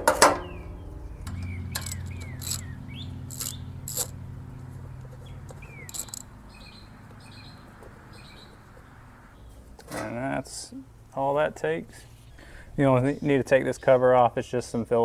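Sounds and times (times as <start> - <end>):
birds chirping: 0.3 - 9.6
hand tools clicking: 1.3 - 4.2, 5.0 - 6.3.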